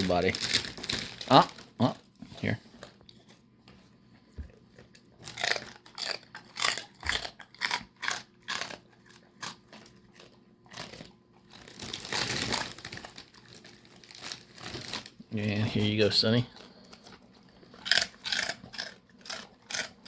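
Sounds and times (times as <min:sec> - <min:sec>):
dog crunching a hard treat: 0:00.0 - 0:03.4, 0:04.4 - 0:20.0
rustling: 0:10.7 - 0:18.0.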